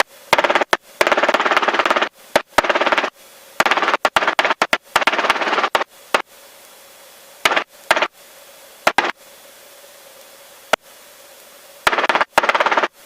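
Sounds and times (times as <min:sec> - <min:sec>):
radio hiss with faint hum: 0:00.0 - 0:13.0
static bursts: 0:00.0 - 0:13.0.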